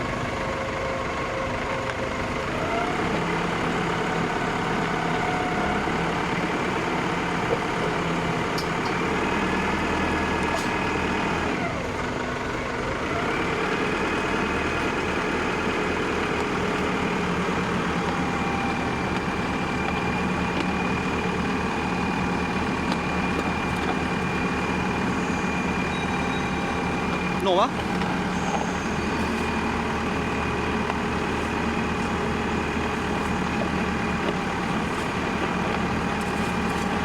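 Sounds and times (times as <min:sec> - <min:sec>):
wheel loader engine running: 0:00.0 - 0:37.0.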